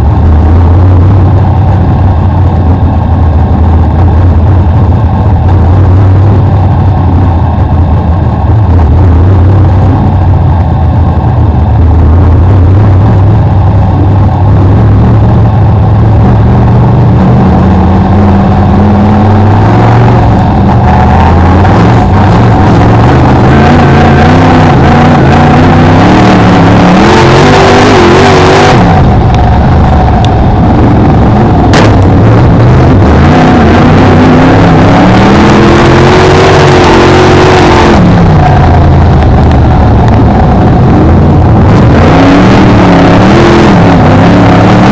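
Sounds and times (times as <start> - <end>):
car engine revving: 0.0 - 44.9
sharp knock: 31.7 - 32.0.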